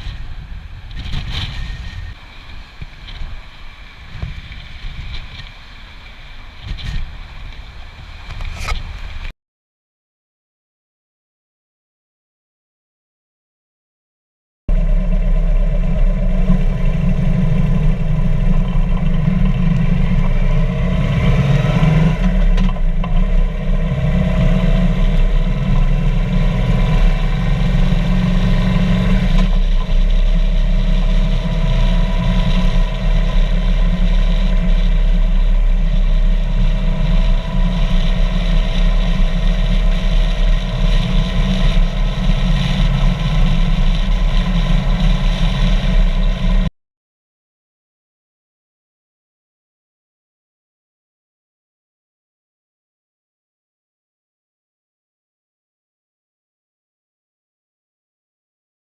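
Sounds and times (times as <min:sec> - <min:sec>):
motorcycle engine running: 0:14.7 - 0:46.7.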